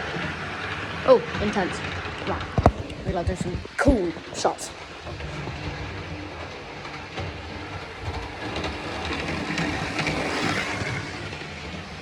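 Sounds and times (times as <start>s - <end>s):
model train motor hum: 0.0s - 12.0s
wheels clicking over track: 0.0s - 12.0s.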